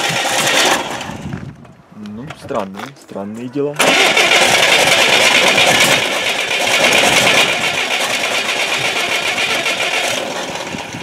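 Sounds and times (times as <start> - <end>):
starter cranking car engine: 0.0 - 1.3, 3.8 - 11.0.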